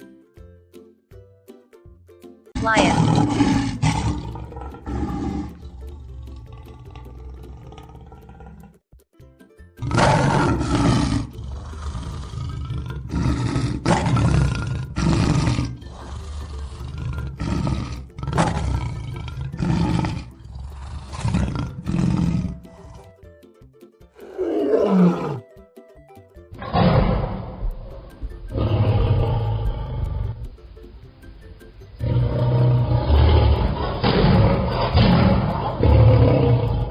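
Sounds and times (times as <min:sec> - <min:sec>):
lion roaring: 0:02.6 - 0:08.8, 0:09.8 - 0:23.2, 0:24.2 - 0:25.4, 0:26.6 - 0:30.4, 0:32.0 - 0:36.9.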